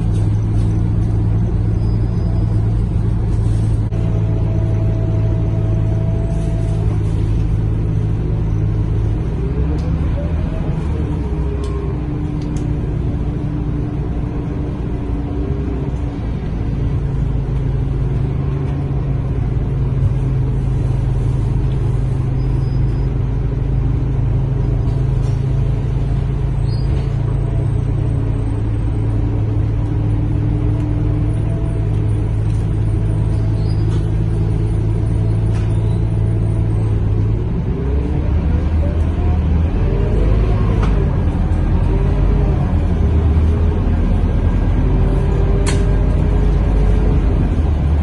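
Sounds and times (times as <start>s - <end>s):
bus engine droning: 0.0s - 48.0s.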